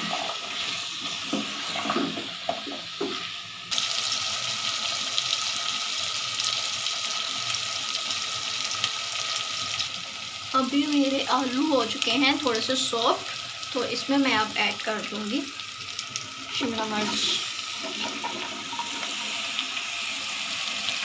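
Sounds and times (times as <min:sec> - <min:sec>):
potatoes sizzling in oil: 0:00.0 - 0:21.0
ladle knocking and scraping pot: 0:17.0 - 0:19.4.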